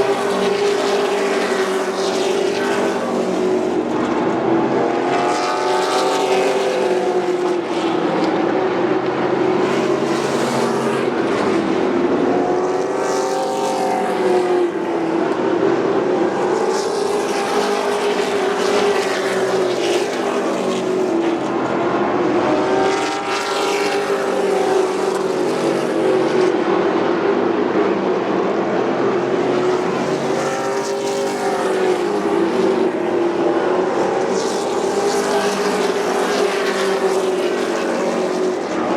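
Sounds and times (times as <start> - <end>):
race truck engines passing: 0.0 - 38.9.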